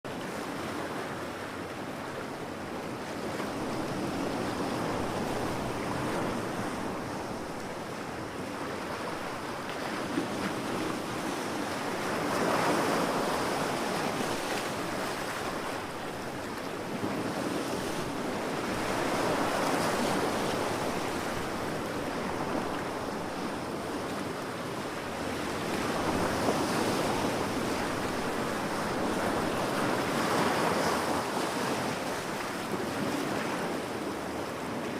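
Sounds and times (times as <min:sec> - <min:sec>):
ocean waves breaking on beach: 0:00.1 - 0:34.9.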